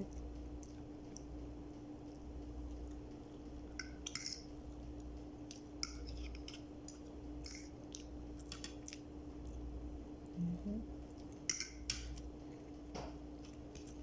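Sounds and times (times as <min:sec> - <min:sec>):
steady low hum: 0:00.0 - 0:14.0
crisp eating crunches: 0:11.0 - 0:14.0.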